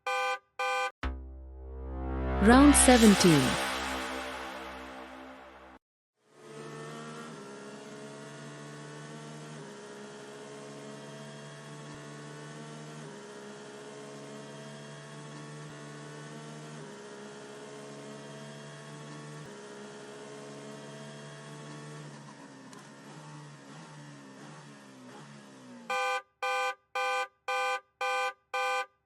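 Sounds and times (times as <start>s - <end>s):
synthesizer chords: 1.0s - 5.8s.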